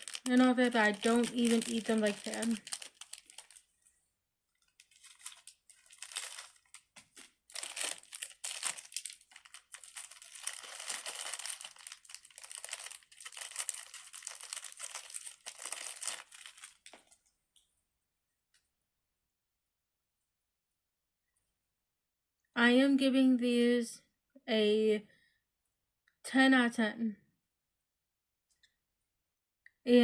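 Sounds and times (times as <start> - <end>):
packaging crinkling: 0.0 - 3.7, 4.6 - 17.2.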